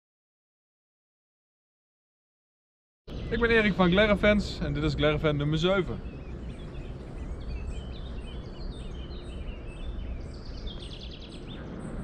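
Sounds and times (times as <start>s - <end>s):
small birds chirping: 3.1s - 12.0s.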